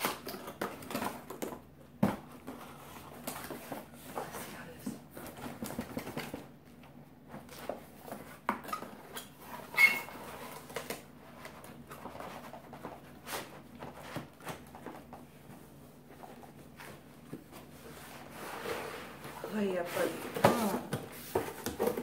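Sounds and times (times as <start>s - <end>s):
squeaky scrape: 9.4s - 10.6s.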